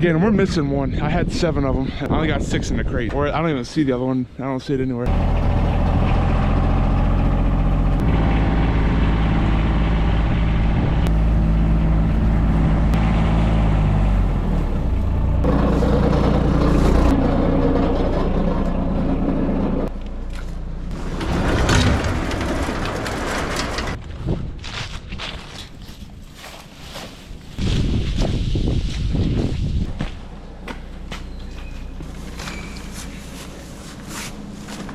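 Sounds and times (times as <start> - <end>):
vehicle engine running: 5.1 - 24.0.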